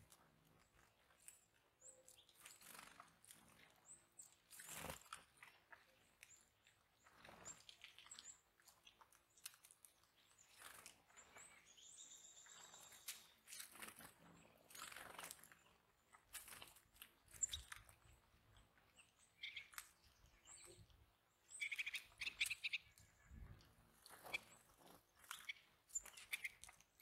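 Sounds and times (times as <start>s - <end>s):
birds cracking seeds: 0.3s - 11.5s, 12.8s - 20.8s, 21.6s - 23.1s, 23.9s - 27.0s
high bird chirps: 21.5s - 23.5s.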